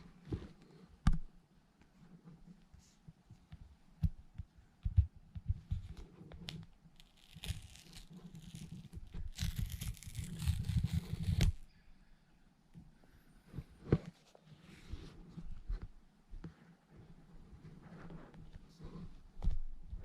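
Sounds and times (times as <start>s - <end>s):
packaging tearing and rustling: 7.0s - 11.6s.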